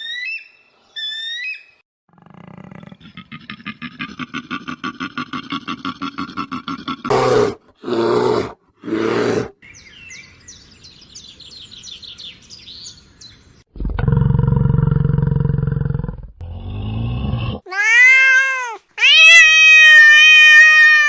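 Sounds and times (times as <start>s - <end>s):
high falling bird chirps: 0.0s - 1.8s, 9.6s - 13.7s
harsh roar-like animal calls: 2.1s - 9.6s.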